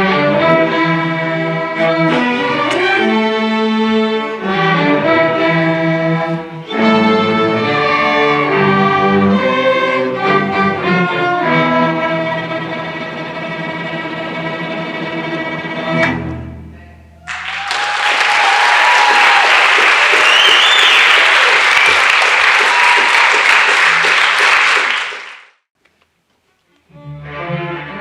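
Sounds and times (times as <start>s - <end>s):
string orchestra playing chords: 0.0s - 16.8s, 26.9s - 28.0s.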